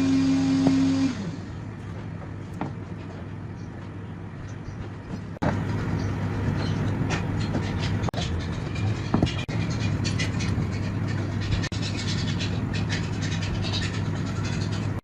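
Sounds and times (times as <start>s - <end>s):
electric motor whining: 0.0s - 1.6s
machine hum: 0.0s - 15.0s.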